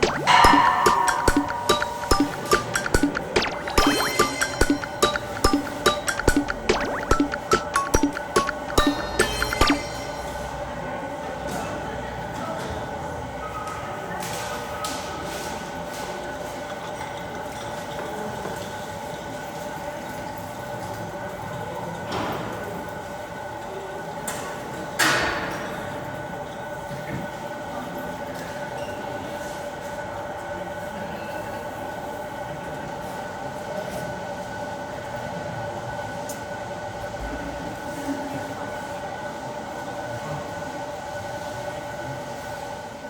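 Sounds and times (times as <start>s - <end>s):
sharp knock: 0.0s - 10.2s.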